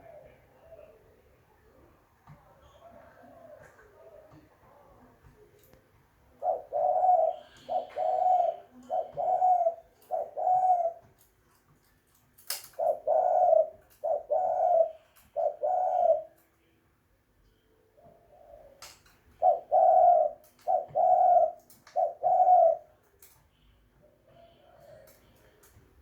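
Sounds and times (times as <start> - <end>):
dove cooing: 0.0 - 1.0, 6.3 - 11.2, 12.7 - 16.4, 18.0 - 23.0.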